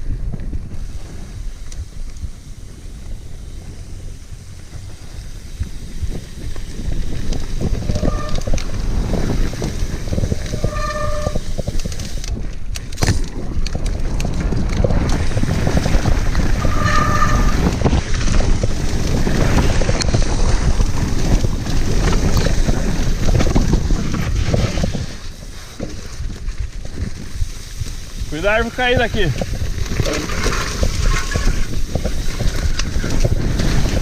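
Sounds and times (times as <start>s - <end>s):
bike rumbling and rattling: 0.0s - 34.0s
wind buffeting microphone: 0.0s - 34.0s
high squeals: 10.5s - 11.5s, 16.5s - 17.7s.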